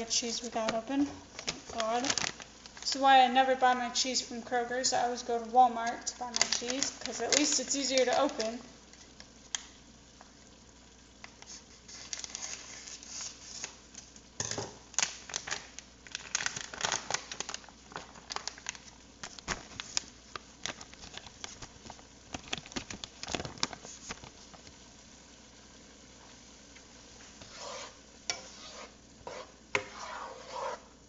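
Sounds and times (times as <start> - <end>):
plastic bag crinkling: 0.3 - 4.0, 5.8 - 8.7, 11.9 - 13.7, 15.0 - 24.7.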